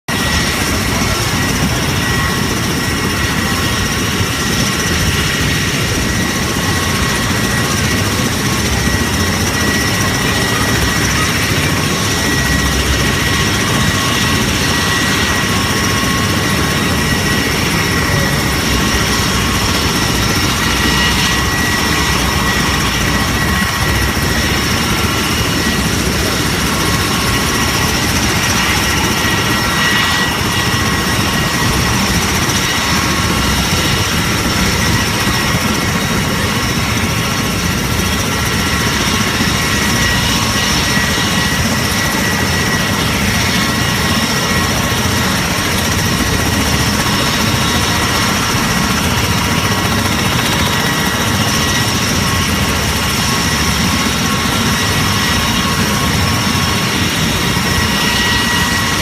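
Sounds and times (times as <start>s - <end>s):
aircraft engine rushing: 0.1s - 59.0s.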